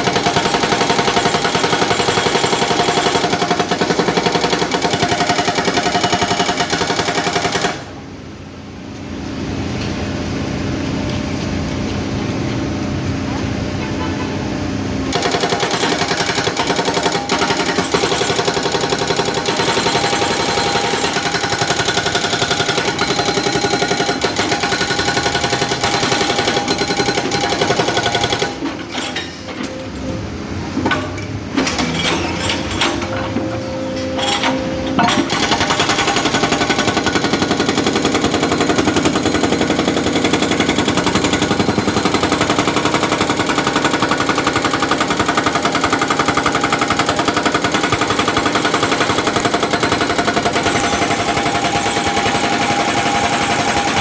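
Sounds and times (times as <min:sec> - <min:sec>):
hydraulic breaker hammering concrete: 0:00.0 - 0:08.1, 0:15.1 - 0:29.2, 0:34.2 - 0:54.0.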